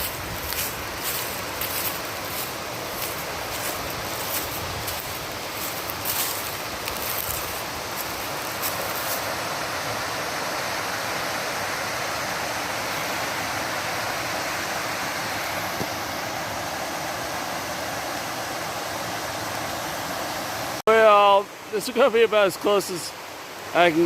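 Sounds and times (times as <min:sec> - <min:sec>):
waterfall and creek rushing: 0:00.0 - 0:24.0.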